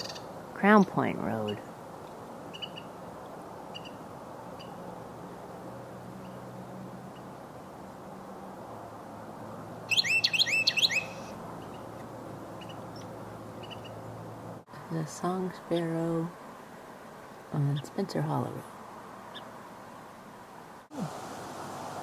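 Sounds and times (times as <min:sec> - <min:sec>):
wren singing sweeping phrases: 0:00.0 - 0:01.8, 0:02.4 - 0:03.0, 0:03.6 - 0:04.9, 0:09.8 - 0:14.0.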